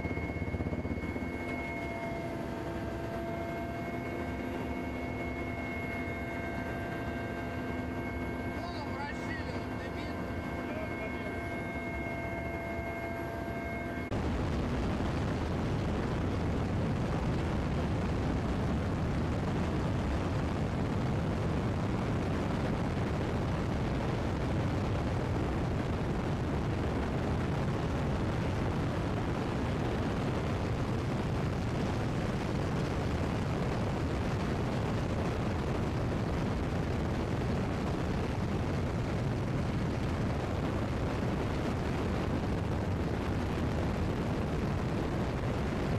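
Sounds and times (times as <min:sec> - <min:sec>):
steady tones: 0:00.0 - 0:14.2
helicopter in flight: 0:00.0 - 0:45.9.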